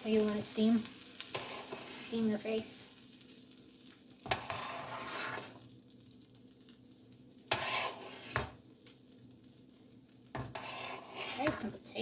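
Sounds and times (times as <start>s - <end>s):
liquid being stirred: 1.3s - 2.1s, 4.3s - 5.6s, 7.5s - 8.6s, 10.3s - 11.8s.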